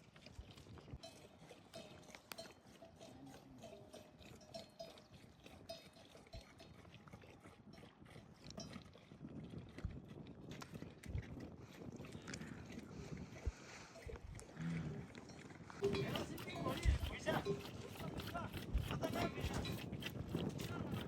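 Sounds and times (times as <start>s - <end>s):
livestock bells clinking: 1.0s - 6.8s, 15.3s - 18.2s, 19.1s - 19.9s.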